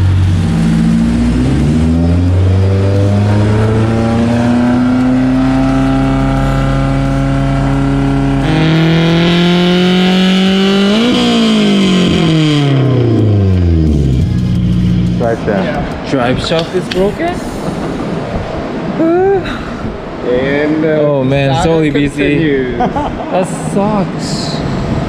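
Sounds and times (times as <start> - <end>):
car engine revving at full throttle: 0.0 - 16.3.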